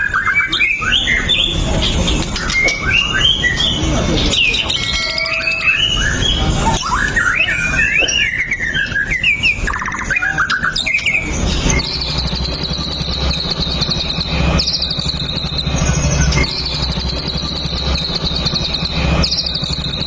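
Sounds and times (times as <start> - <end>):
bird whistling song: 2.4 - 20.0
rapid high buzzing trill: 11.0 - 20.0
steady low hum: 11.0 - 20.0.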